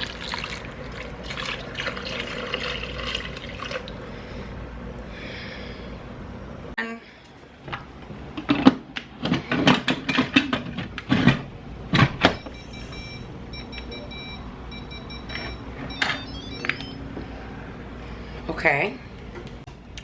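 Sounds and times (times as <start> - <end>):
short electronic beeps: 12.4 - 17.0.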